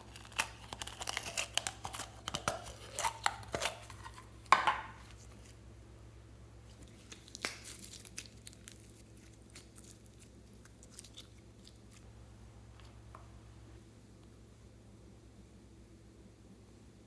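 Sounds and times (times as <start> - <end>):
slime clicking and crackling: 0.0 - 4.2, 6.9 - 12.0.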